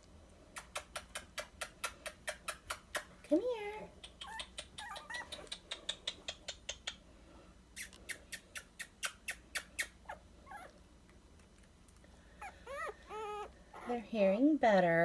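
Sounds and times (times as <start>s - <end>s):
puppies squeaking: 4.1s - 7.0s, 7.8s - 10.8s, 12.3s - 15.0s.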